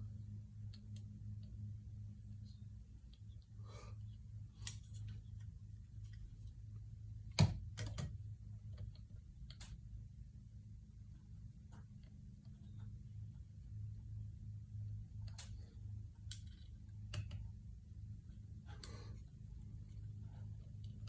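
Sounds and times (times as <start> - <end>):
steady low hum: 0.0 - 21.0
small clicks: 7.4 - 9.9, 15.2 - 17.5.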